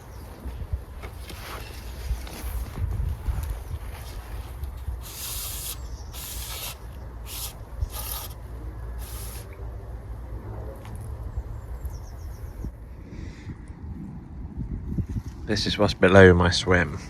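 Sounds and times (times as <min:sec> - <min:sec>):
wind on microphone: 0:01.6 - 0:06.7, 0:11.9 - 0:15.7
rustling brushing hisses: 0:05.0 - 0:08.4, 0:09.0 - 0:09.5.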